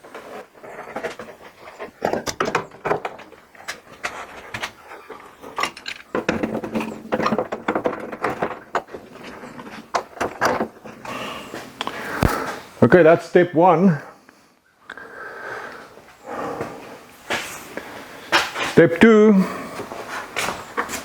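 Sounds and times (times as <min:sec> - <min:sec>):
steel panels knocking and scraping: 0:00.0 - 0:12.4.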